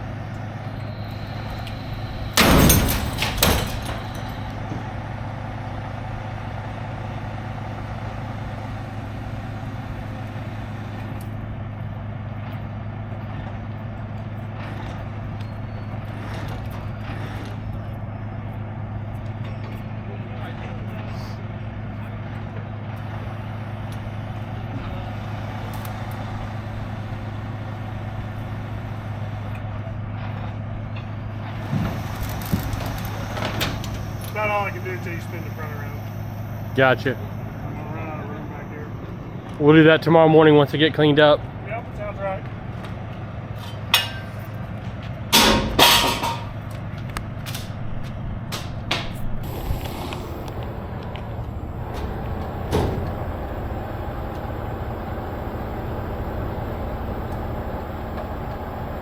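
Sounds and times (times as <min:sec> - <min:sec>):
truck engine running: 0:00.0 - 0:59.0
loud noisy burst: 0:32.0 - 0:39.6, 0:49.4 - 0:59.0.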